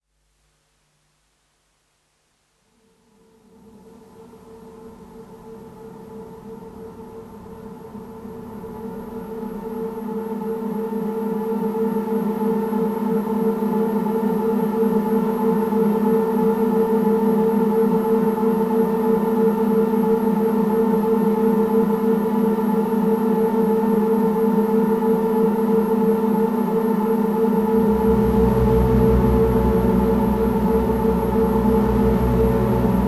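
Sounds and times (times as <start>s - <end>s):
synthesizer drone chord: 27.5s - 33.0s
deep bass tone: 27.6s - 33.0s.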